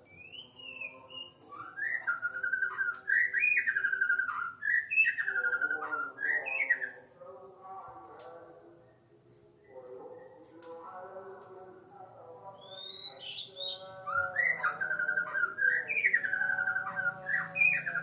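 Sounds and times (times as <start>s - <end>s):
bird singing whistled phrases: 0.0s - 7.0s, 12.6s - 18.0s.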